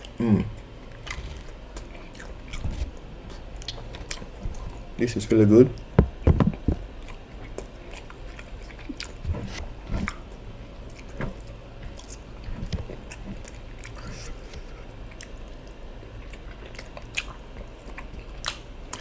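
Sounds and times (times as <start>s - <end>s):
person chewing food: 0.0s - 4.6s, 7.0s - 10.3s, 16.2s - 19.0s.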